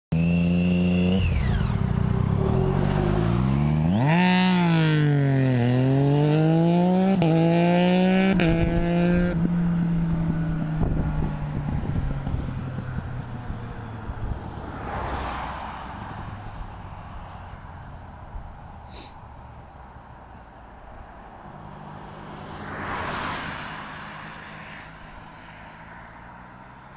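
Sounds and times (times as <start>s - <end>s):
motorcycle engine revving: 0.1s - 13.7s
motorcycle accelerating with upshifts: 0.1s - 15.4s.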